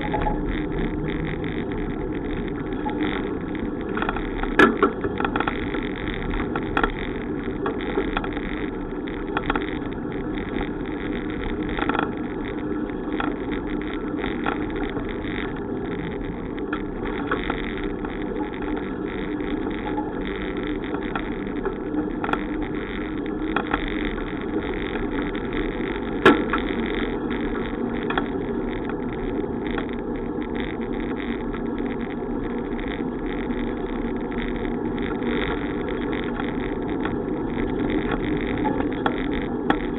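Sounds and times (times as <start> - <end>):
bicycle tyres rolling and wind: 0.0 - 39.9.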